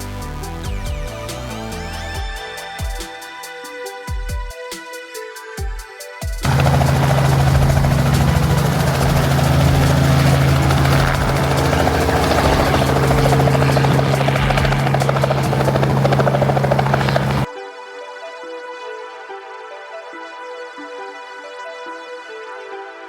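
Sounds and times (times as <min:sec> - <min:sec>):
electronic music: 0:00.0 - 0:23.0
helicopter rotor and engine: 0:06.4 - 0:17.5.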